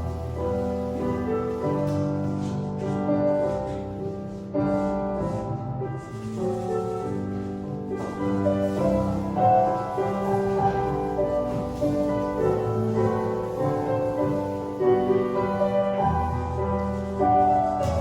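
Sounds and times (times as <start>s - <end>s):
piano background music: 0.0s - 18.0s.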